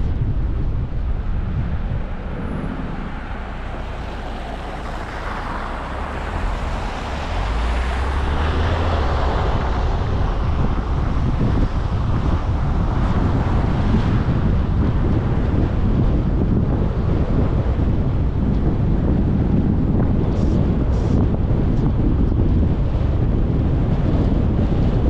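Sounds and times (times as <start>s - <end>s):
wind rumble on microphone: 0.0s - 25.0s.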